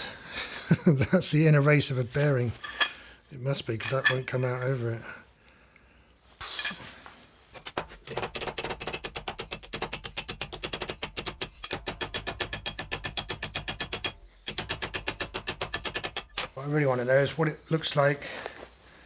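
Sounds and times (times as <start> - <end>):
rapid even clicking: 7.8 - 16.6.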